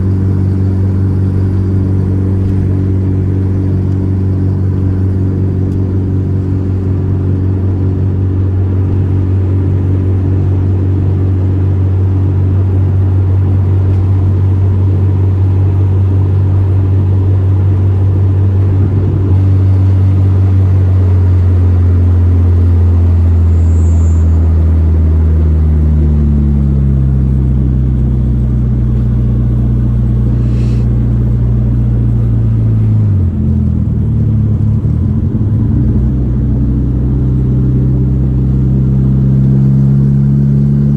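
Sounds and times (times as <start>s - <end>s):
car engine droning: 0.0s - 40.9s.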